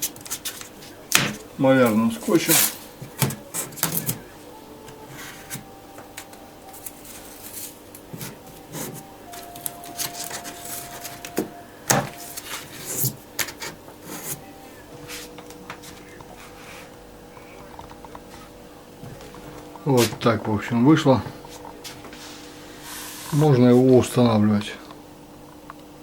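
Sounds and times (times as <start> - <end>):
hand rubbing: 0.0 - 16.9
masking tape rasping: 1.8 - 4.3, 6.7 - 14.4.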